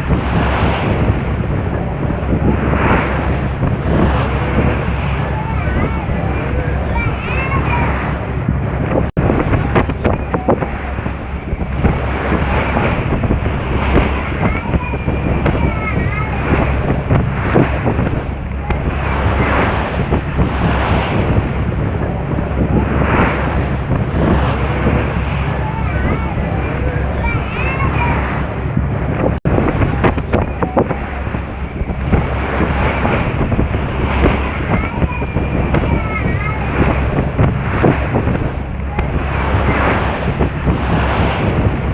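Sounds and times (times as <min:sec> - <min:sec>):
sea waves: 0:00.0 - 0:41.9
wind buffeting microphone: 0:00.0 - 0:41.9.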